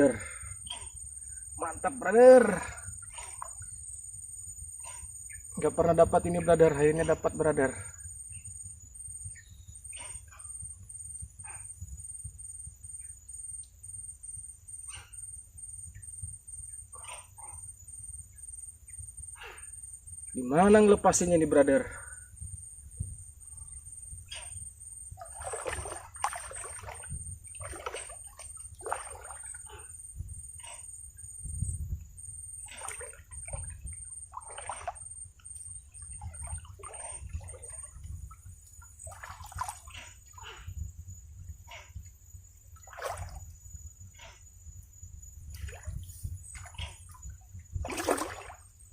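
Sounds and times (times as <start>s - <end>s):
water splashing and sloshing: 0.0s - 5.2s, 23.0s - 44.6s, 45.4s - 48.9s
insects droning: 0.0s - 48.9s.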